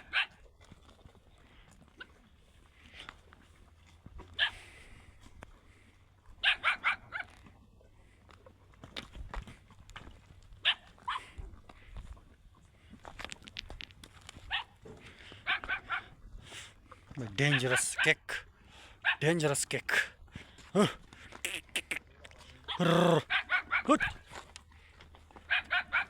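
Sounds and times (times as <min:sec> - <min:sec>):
animal short sharp calls: 0:20.8 - 0:22.1, 0:22.7 - 0:24.2.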